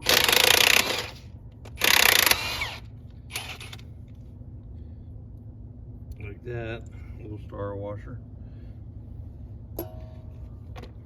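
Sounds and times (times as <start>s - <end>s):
cordless impact wrench bursts: 0.0s - 3.8s.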